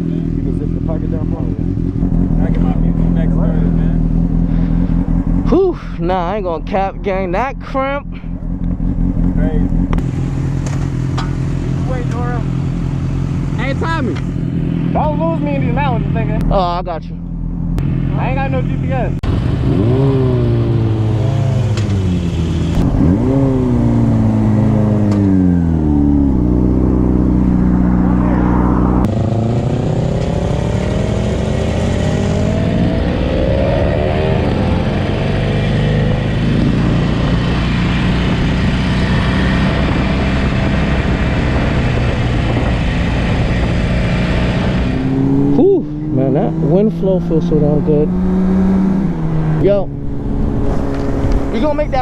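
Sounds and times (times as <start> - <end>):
motorcycle engine revving: 0.0 - 52.0
wind rushing past: 22.8 - 30.0, 48.1 - 52.0.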